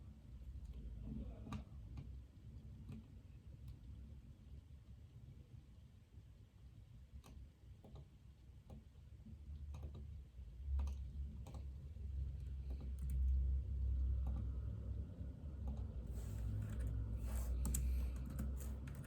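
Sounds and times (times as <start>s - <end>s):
keyboard typing: 12.6s - 13.3s, 15.6s - 19.0s.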